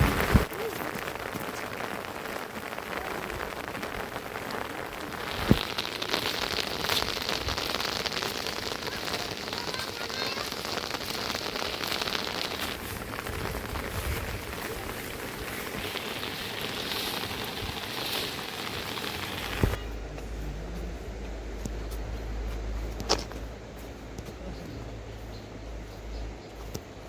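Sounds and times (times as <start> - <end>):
steady rain falling: 0.0 - 25.8.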